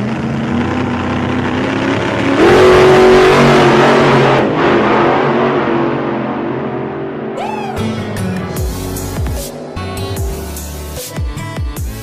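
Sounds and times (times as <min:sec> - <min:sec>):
vehicle engine revving: 0:00.0 - 0:07.2, 0:07.8 - 0:12.0.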